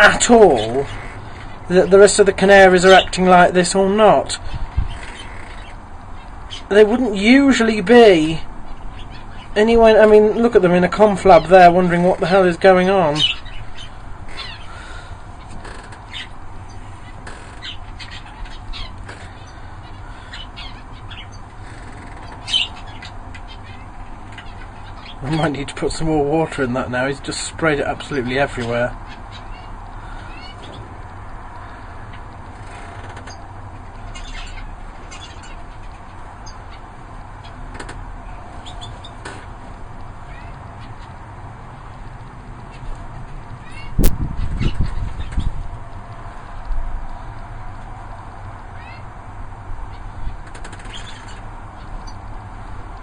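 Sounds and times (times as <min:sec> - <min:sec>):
canaries chirping: 0:00.0 - 0:42.0, 0:42.6 - 0:45.6, 0:48.6 - 0:52.9
low background hum: 0:00.0 - 0:53.0
low background noise: 0:00.0 - 0:53.0.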